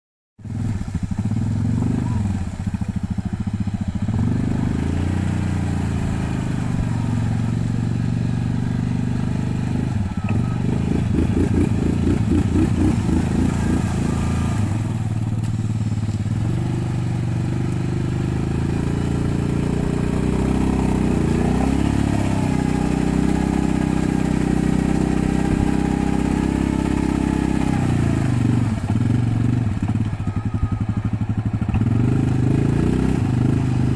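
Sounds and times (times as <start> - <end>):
quad bike engine revving: 0.4 - 33.9.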